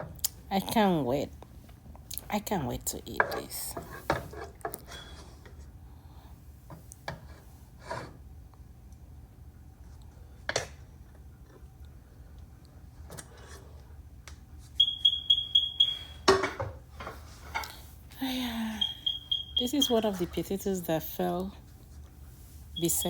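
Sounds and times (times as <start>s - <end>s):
rapid electronic beeps: 14.8s - 16.2s, 18.8s - 20.0s, 22.8s - 23.0s.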